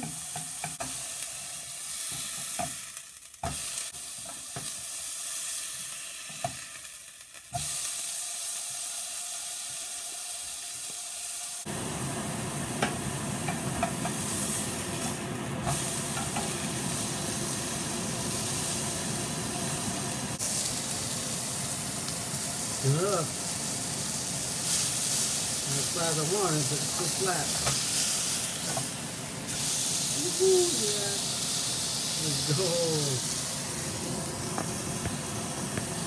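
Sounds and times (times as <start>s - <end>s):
spatula tapping pan: 0.0s - 1.0s, 12.8s - 14.2s
burger patty sizzling in pan: 0.0s - 36.0s.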